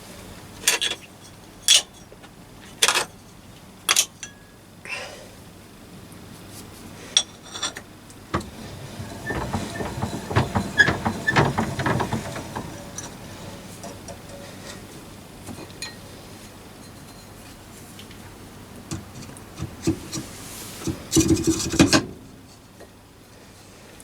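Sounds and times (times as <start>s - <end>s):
quick knocking and rattling: 8.3s - 14.4s.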